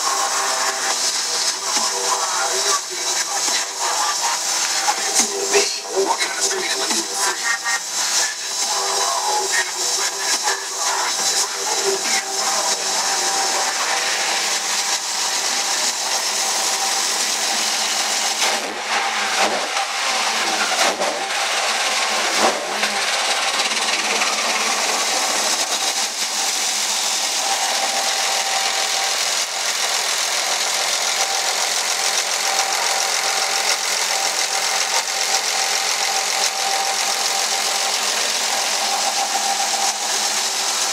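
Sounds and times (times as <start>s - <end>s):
engine whine: 0.0s - 40.9s
car engine idling: 13.8s - 40.9s.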